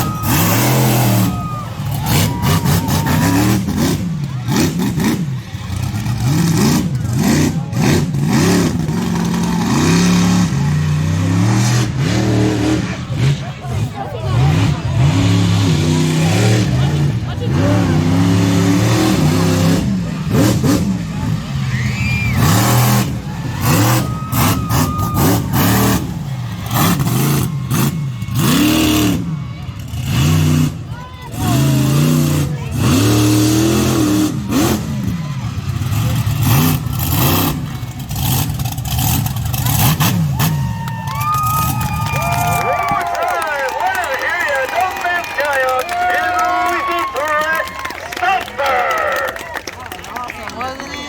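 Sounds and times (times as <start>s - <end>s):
monster truck engine revving: 0.0s - 51.0s.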